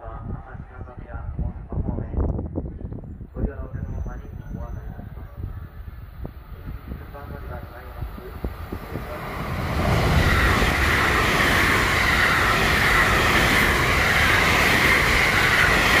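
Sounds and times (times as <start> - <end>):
electric train passing at speed: 3.6 - 16.0.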